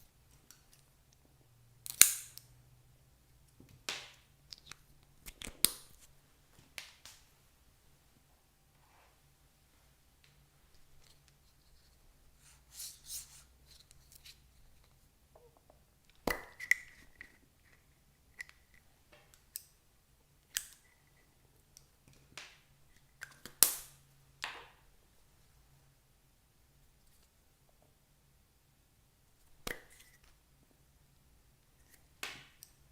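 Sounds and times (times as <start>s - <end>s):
sharp clicks and snaps: 1.8s - 2.5s, 4.5s - 6.0s.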